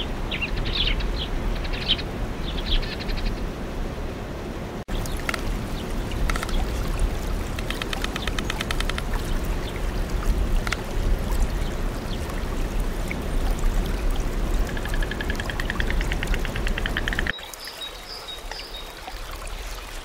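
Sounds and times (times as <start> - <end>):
trickling water: 4.9 - 20.0.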